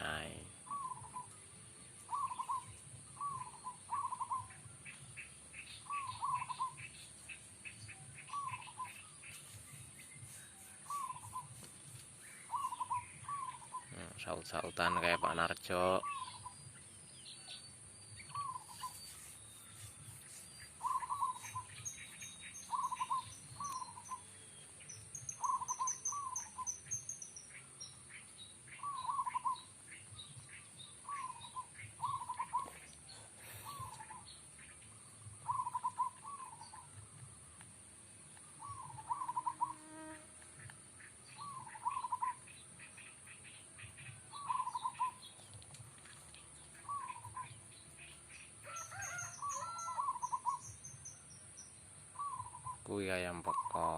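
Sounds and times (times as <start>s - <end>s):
doves cooing: 0.0s - 1.3s, 2.1s - 4.9s, 5.8s - 6.9s, 12.5s - 16.6s, 18.3s - 19.0s, 20.8s - 21.8s, 22.7s - 24.2s, 25.4s - 26.7s, 28.8s - 30.3s, 31.0s - 34.4s, 35.3s - 37.1s, 38.6s - 40.7s, 41.4s - 42.5s, 43.8s - 47.6s, 48.6s - 50.6s.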